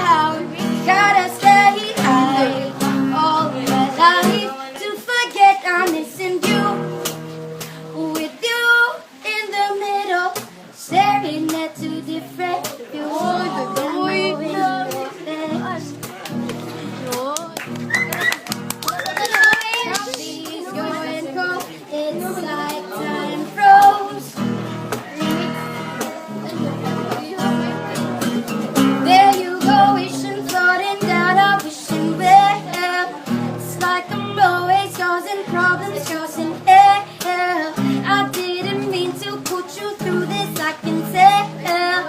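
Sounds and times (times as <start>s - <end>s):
girl singing: 0.0s - 16.1s, 19.3s - 27.8s, 28.8s - 42.0s
acoustic guitar chords: 0.0s - 18.8s, 19.8s - 42.0s.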